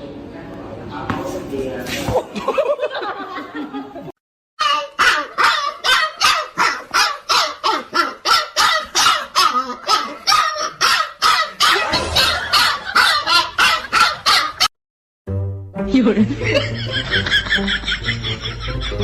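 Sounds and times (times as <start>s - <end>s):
dog barking: 4.6s - 14.7s.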